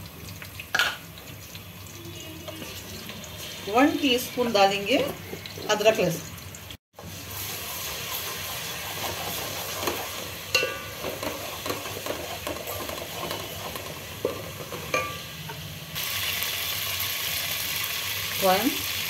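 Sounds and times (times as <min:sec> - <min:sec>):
onions sizzling in hot oil: 0:00.0 - 0:19.0
wooden spatula scraping pot: 0:07.4 - 0:15.1.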